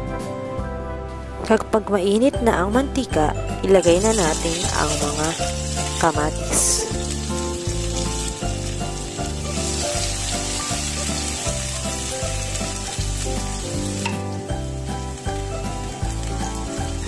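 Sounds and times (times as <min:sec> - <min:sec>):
background music: 0:00.0 - 0:17.0
tomatoes sizzling in hot oil: 0:03.8 - 0:17.0.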